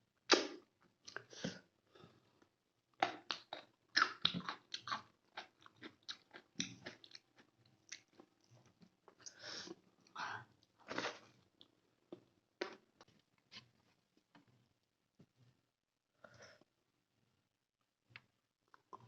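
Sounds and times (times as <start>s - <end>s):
wet chewing and mouth clicks: 3.0s - 9.4s.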